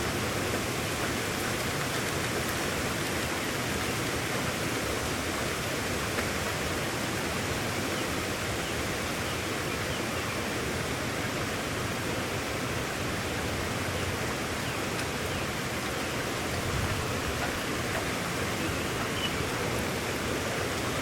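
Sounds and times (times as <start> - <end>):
heavy rain hissing: 10.4 - 21.0.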